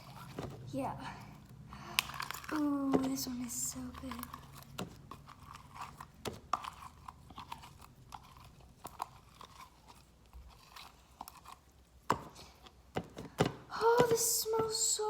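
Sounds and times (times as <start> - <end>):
slime crackling and popping: 1.4 - 12.9.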